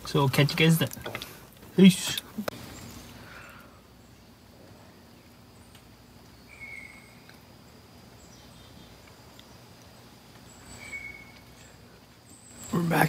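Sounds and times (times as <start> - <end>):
soft outdoor background: 0.0 - 13.0
faint high bird chirps: 5.5 - 13.0
bird whistled note: 6.5 - 7.2, 10.8 - 11.4.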